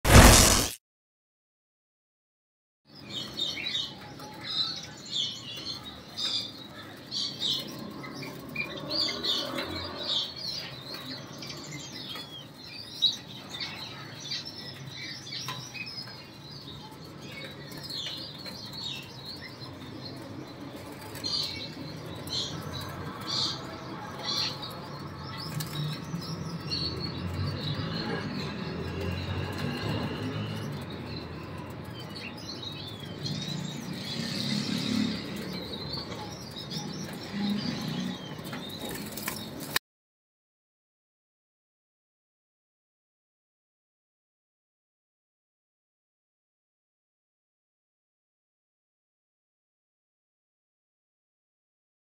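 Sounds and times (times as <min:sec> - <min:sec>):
small birds chirping: 0:02.9 - 0:39.8.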